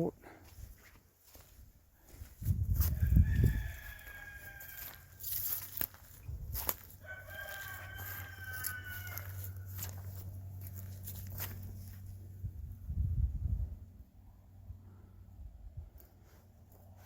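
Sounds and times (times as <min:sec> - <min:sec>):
rooster crowing: 0:02.8 - 0:05.6, 0:06.9 - 0:10.1.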